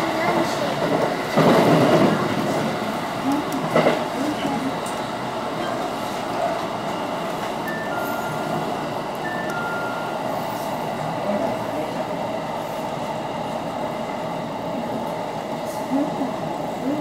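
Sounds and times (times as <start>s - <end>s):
electric train rumble and hiss: 0.0s - 17.0s
falling two-note chime: 7.7s - 8.6s.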